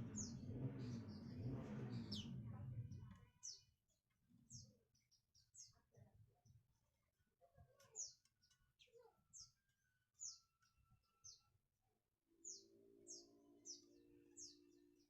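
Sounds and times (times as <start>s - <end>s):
low steady hum: 0.0s - 3.1s
small birds chirping: 0.0s - 7.0s, 7.6s - 11.6s, 12.4s - 15.0s.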